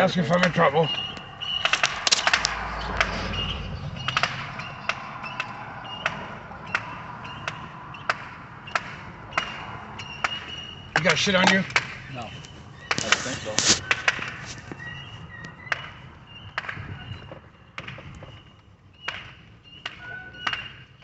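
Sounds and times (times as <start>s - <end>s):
low rumble: 0.0s - 9.9s
sharp ticks: 0.0s - 14.4s
fireworks crackling pops: 0.3s - 5.4s, 10.3s - 14.8s.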